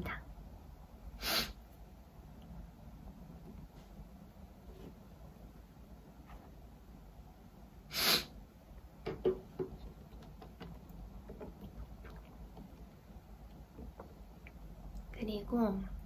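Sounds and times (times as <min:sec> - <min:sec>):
breathy sniff: 0:01.2 - 0:01.6, 0:07.9 - 0:08.4.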